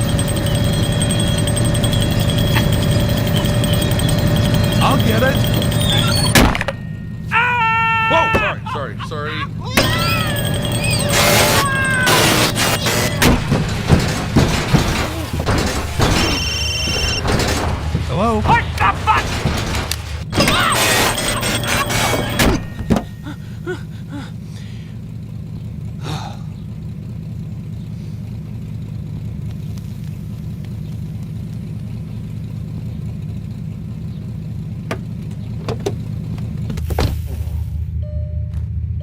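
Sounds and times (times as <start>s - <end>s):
short repeated beeps: 0.0s - 7.2s, 9.8s - 13.3s, 15.9s - 17.6s
clattering mechanical sounds: 0.0s - 23.6s
cartoon car engine hum: 0.0s - 39.0s.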